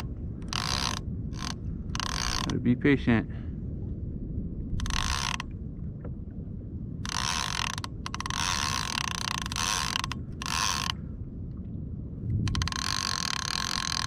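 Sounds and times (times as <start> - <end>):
fishing reel ratchet clicking: 0.0 - 2.6, 4.8 - 5.5, 7.0 - 11.0, 12.5 - 14.0
low rumble of water and wind: 0.0 - 14.0.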